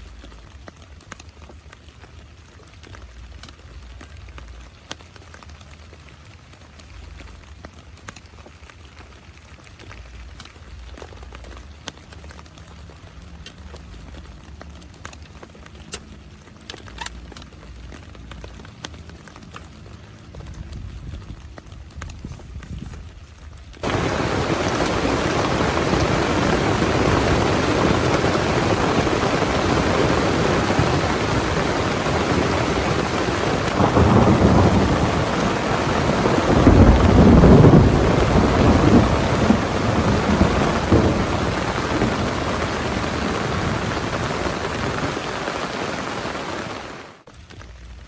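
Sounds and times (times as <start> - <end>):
heavy rain: 23.7 - 48.0
thunder rumbling: 23.8 - 47.2.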